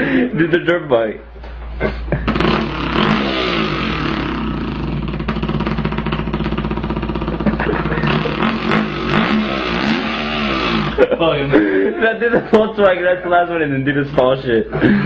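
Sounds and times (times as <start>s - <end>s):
man imitating engine with voice: 2.2s - 11.5s.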